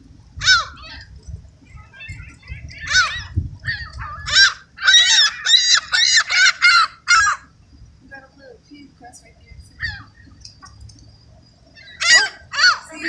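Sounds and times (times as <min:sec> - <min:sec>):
seagulls calling: 0:00.0 - 0:13.0.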